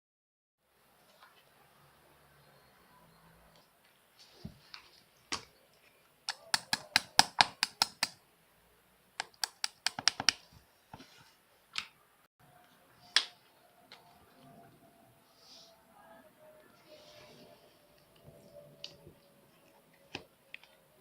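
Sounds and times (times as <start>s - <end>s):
sharp clicks: 9.2s - 10.4s.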